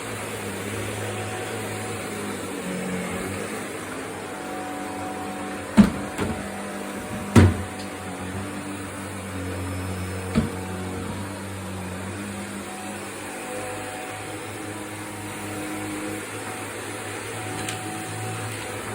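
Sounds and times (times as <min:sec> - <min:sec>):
vacuum cleaner running: 0:00.0 - 0:18.9
sharp knocks: 0:05.8 - 0:07.8.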